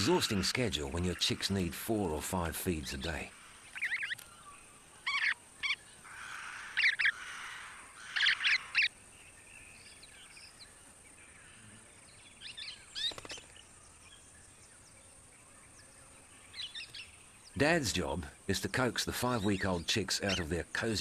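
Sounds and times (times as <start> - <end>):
faint high-pitched hiss: 0.0 - 21.0
parrots calling: 3.1 - 4.4, 5.0 - 8.9, 19.1 - 20.6.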